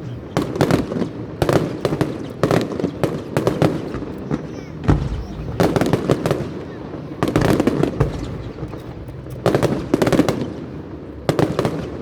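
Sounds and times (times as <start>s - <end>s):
fireworks crackling bursts: 0.0s - 12.0s.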